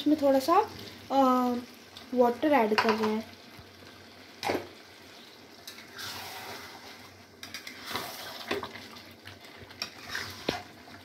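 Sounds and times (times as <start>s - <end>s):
curry sizzling in a pan: 0.0s - 11.0s
spatula scraping a steel pan: 9.8s - 10.7s.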